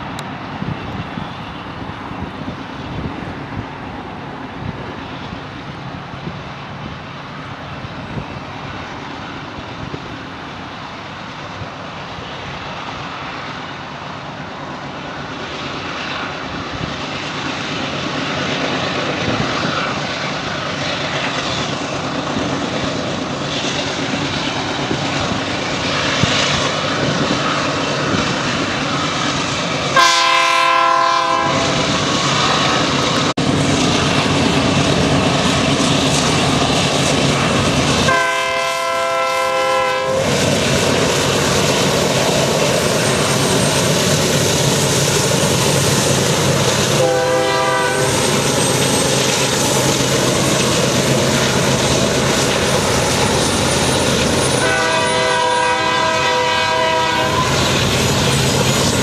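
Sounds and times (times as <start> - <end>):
diesel engines and rolling train: 0.0 - 59.0
train air horn: 30.0 - 31.9, 38.1 - 40.3, 47.0 - 48.3, 54.5 - 57.6
wheels clacking on rail joints: 47.8 - 55.8.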